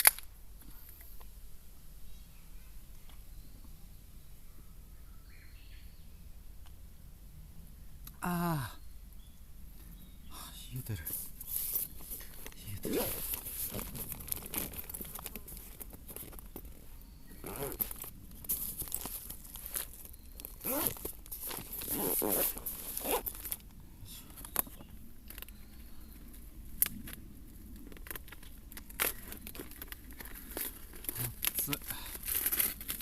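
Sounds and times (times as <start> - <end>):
plastic packaging crinkling and tearing: 11.3 - 16.8, 17.4 - 23.7, 24.4 - 33.0.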